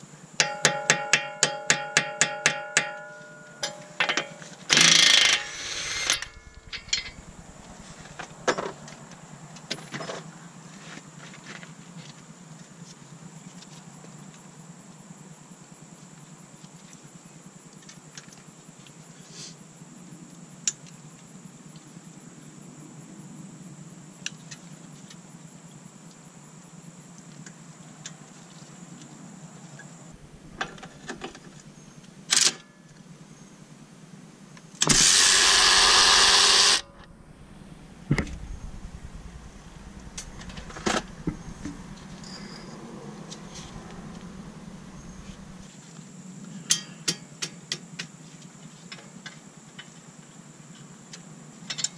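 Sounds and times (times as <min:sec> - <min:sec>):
metal tool clinks and taps: 0:00.4 - 0:04.6
power tool burst: 0:04.7 - 0:08.3, 0:34.8 - 0:42.0.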